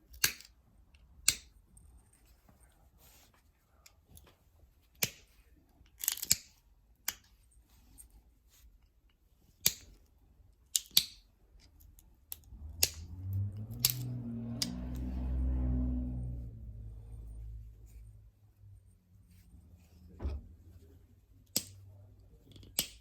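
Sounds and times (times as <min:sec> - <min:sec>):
stone knapping clicks and snaps: 0:00.1 - 0:00.5, 0:01.2 - 0:01.5, 0:06.0 - 0:07.3, 0:09.6 - 0:10.0, 0:10.7 - 0:11.2, 0:12.4 - 0:13.0, 0:21.5 - 0:21.8, 0:22.5 - 0:23.0.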